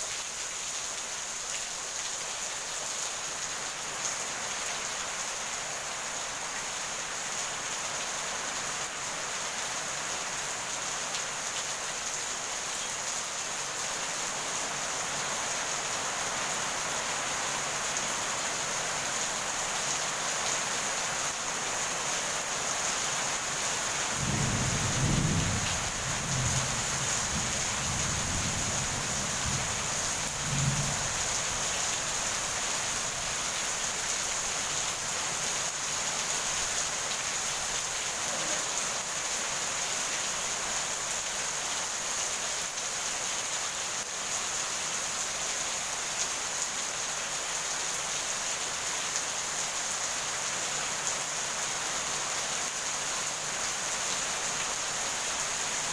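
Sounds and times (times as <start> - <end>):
heavy rain: 0.0 - 55.9
rolling thunder: 24.2 - 31.2.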